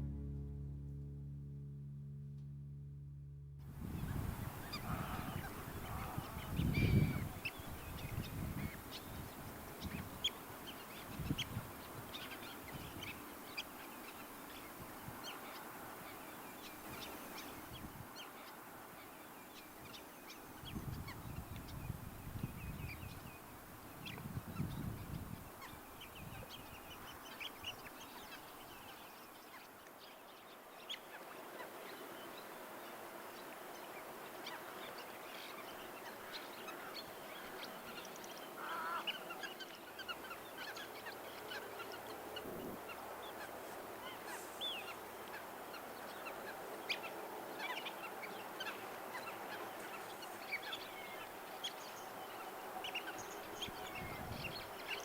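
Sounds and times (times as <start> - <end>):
steady background hiss: 25.0 - 55.0
waterbirds calling: 30.4 - 55.0.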